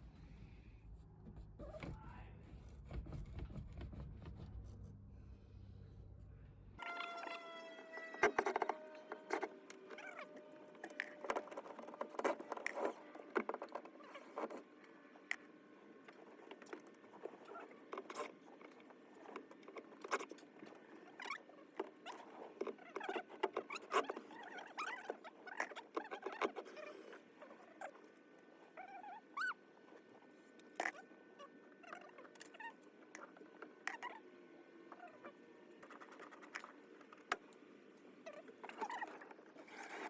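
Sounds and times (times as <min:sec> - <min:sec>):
short squeaks: 0:06.8 - 0:13.0.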